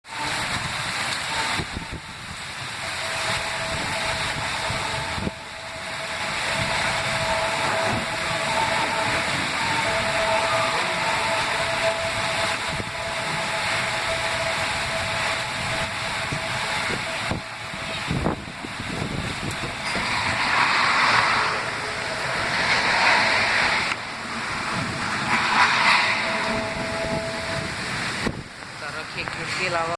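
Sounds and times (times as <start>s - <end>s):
steady rain hiss: 0.0s - 29.9s.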